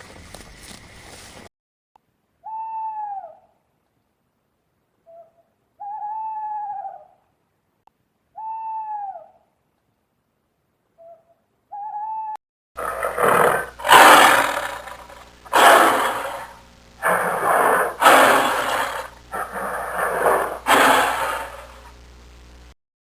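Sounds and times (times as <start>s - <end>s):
large animal roaring: 12.8s - 21.9s.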